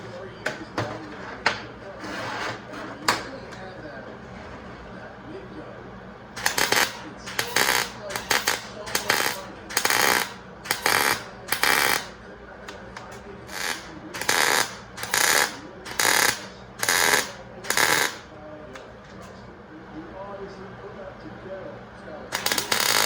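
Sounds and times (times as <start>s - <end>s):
welder crackling bursts: 6.4s - 18.3s, 22.3s - 23.0s.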